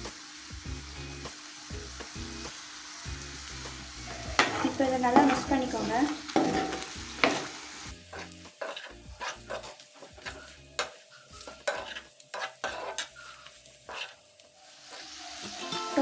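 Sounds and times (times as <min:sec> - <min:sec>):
food sizzling: 0:00.0 - 0:16.0
utensil scraping frying pan: 0:04.0 - 0:16.0.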